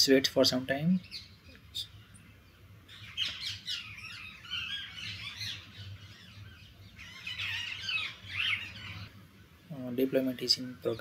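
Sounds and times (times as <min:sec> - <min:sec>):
birds chirping and squawking: 0:00.8 - 0:11.0.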